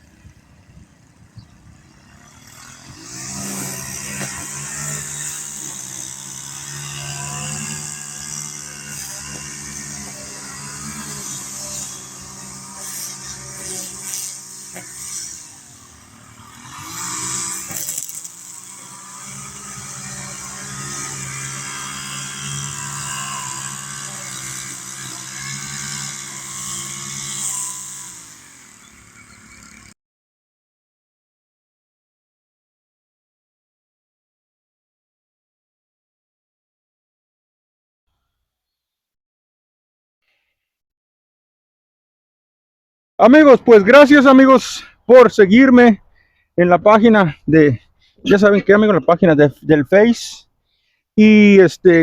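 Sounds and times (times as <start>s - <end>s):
mower engine running: 0.0s - 30.0s.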